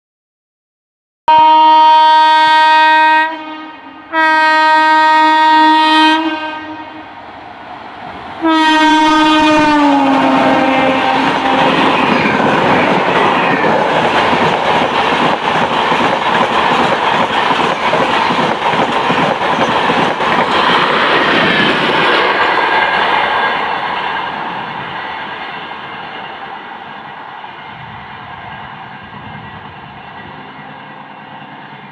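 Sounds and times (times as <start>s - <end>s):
train coaches roaring past: 1.4s - 31.9s
wheels clickety-clack: 11.7s - 23.5s.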